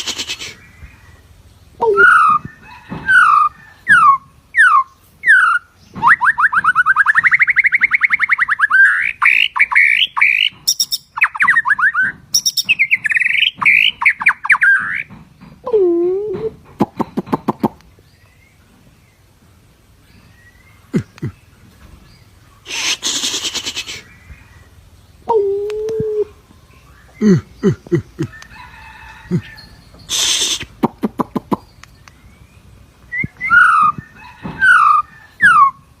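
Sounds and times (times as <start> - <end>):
bird hissing rasp: 0.0 - 0.6, 22.6 - 24.1, 30.1 - 30.8
songbird singing fast trills: 1.8 - 15.1, 29.5 - 35.9
lower bending bird call: 29.2 - 36.0
bird sharp chips: 30.0 - 32.3.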